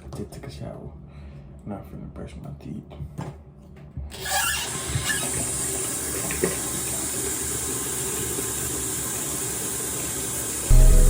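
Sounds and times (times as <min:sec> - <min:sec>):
tap water pouring into basin: 0:05.4 - 0:10.7.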